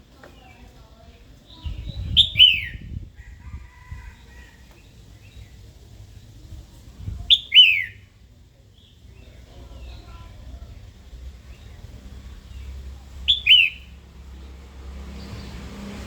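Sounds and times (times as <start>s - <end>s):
bird sharp downward calls: 1.6s - 2.9s, 7.3s - 8.1s, 13.2s - 14.0s.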